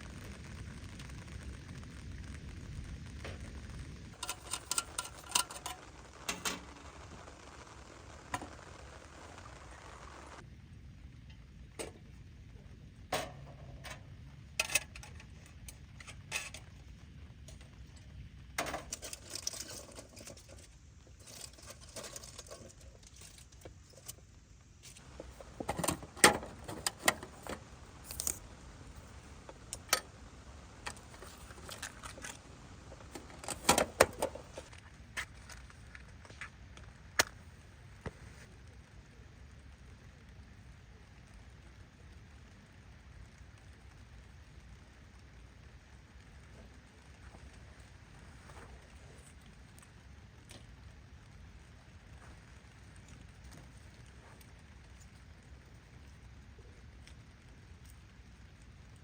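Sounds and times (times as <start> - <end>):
low steady background: 0.0 - 59.0
metal camp gear clinking: 4.2 - 6.8, 18.6 - 24.2, 25.1 - 28.5, 30.8 - 34.7.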